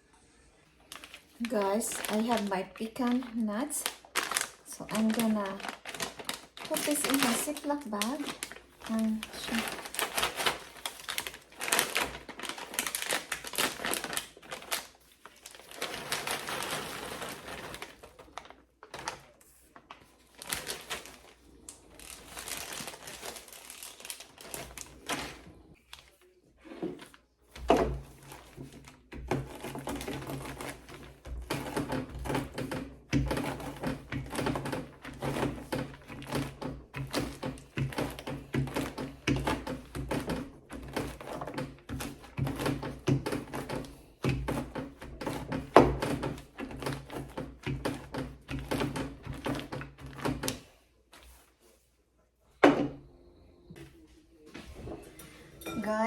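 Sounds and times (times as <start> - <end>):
plastic bag crinkling: 0.7 - 50.5.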